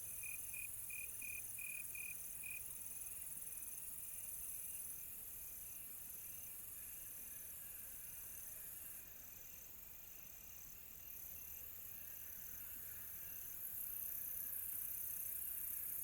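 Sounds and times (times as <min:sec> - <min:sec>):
crickets chirping: 0:00.1 - 0:02.6.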